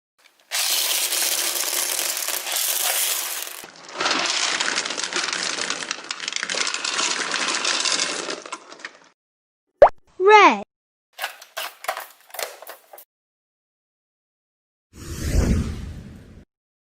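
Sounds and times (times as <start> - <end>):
clattering of small hard pieces: 0.2 - 9.2.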